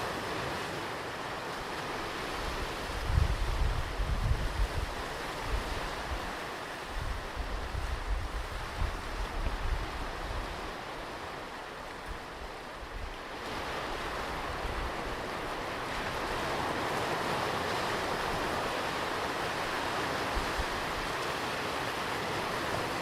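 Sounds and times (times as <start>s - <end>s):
ocean surf washing on beach: 0.0s - 23.0s
wind buffeting microphone: 2.4s - 11.4s.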